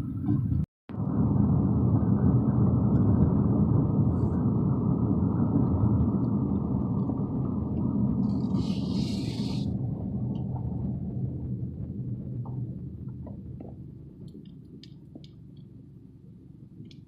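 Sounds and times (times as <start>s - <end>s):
car interior road rumble: 0.0s - 17.0s
brief hiss: 8.4s - 9.7s.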